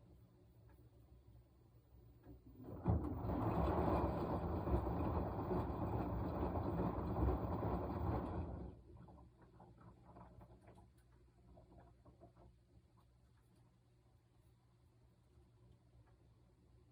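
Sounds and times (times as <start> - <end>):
washing machine drum rumbling: 2.2 - 10.6.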